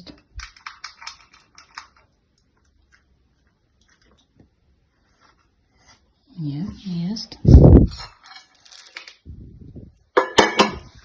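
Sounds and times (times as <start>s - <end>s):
dog crunching dry food: 0.4s - 3.2s.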